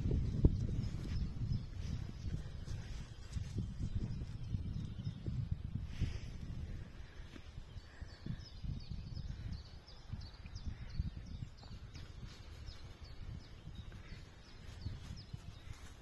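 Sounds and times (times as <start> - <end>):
bird chirping: 7.0 - 16.0.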